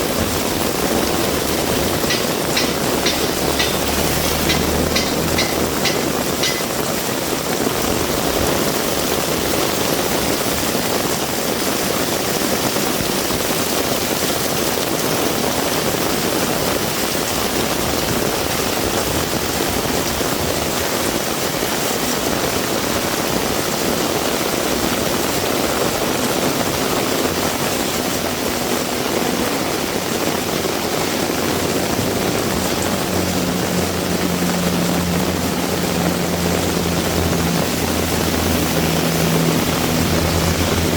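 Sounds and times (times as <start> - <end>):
vehicle engine humming: 0.0 - 9.1, 24.9 - 40.9
heavy rain: 0.0 - 40.9.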